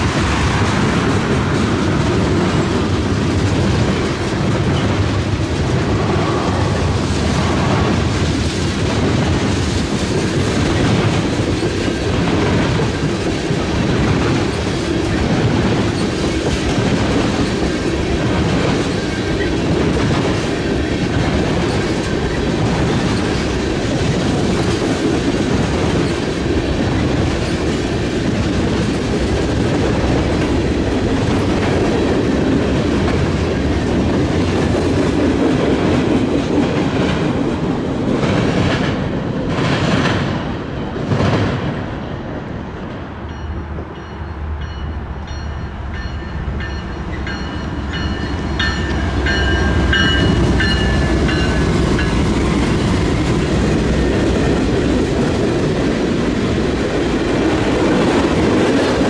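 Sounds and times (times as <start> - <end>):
wheels clacking over rail joints: 0.0 - 41.7
railroad cars rumbling: 0.0 - 59.0.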